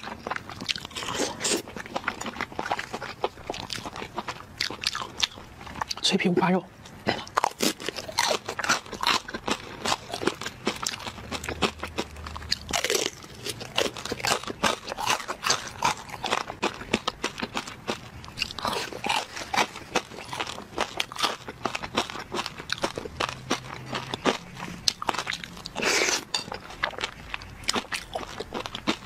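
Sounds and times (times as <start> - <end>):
crunching and chewing crispy pork: 0.0 - 29.0.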